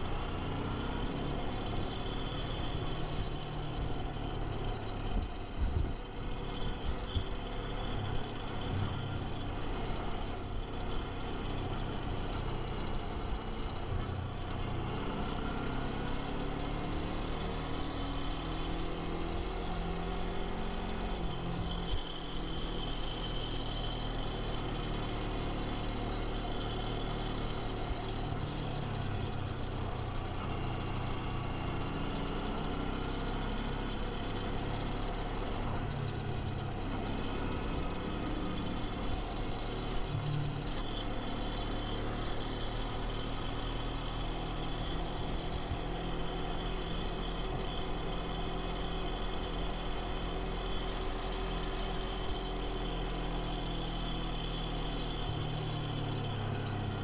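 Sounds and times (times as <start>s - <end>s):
motorcycle engine running: 0.0s - 57.0s
brief high squeal: 10.1s - 10.8s.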